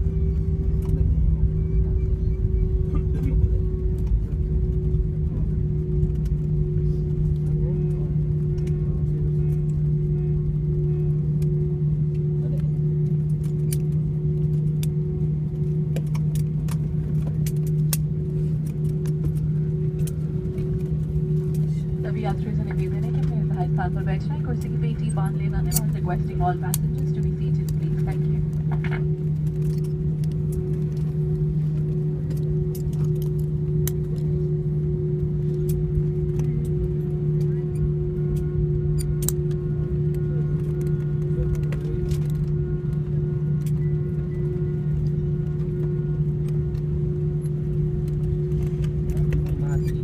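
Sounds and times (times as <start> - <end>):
airliner engine hum: 0.0 - 50.0
higher steady tone: 0.0 - 50.0
sharp clicks in cabin: 15.9 - 21.6, 24.4 - 31.0, 35.5 - 42.8.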